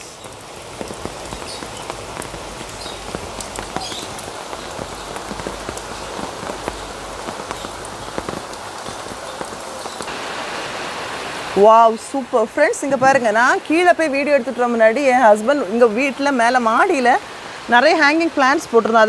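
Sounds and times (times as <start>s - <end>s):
raindrops ticking: 0.0s - 10.3s
rain falling: 0.0s - 19.0s.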